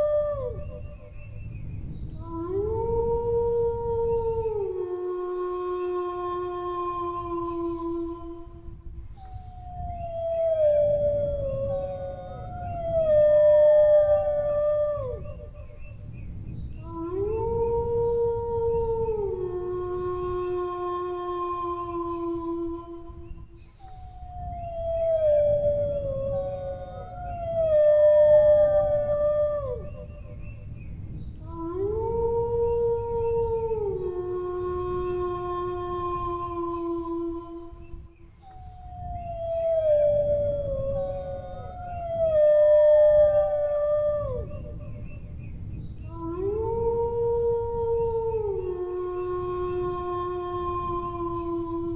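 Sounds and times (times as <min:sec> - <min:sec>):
dogs howling: 0:00.0 - 0:00.8
higher dog howl: 0:00.0 - 0:00.9, 0:16.8 - 0:23.4, 0:31.4 - 0:37.7, 0:46.0 - 0:51.9
dog howling long: 0:00.0 - 0:01.2, 0:02.1 - 0:30.5, 0:31.4 - 0:45.3, 0:46.0 - 0:51.9.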